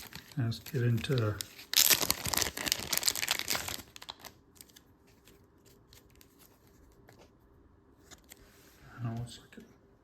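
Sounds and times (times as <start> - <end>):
packaging crinkling and tearing: 0.0 - 6.6.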